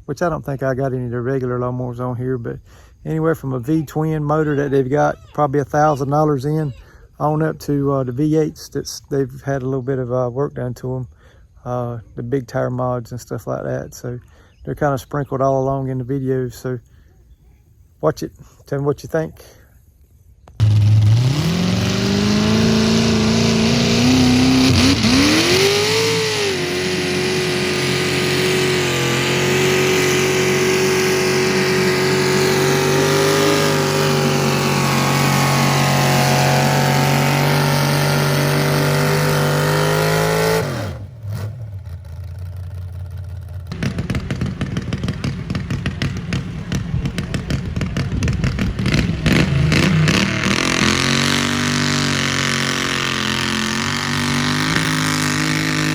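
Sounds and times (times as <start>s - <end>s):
garden tractor engine revving: 20.5s - 55.9s.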